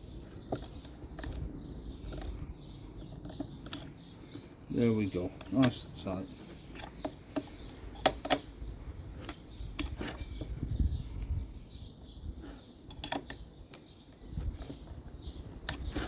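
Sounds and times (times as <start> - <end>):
hand tools clicking and knocking: 0.1 - 8.6, 12.9 - 16.0.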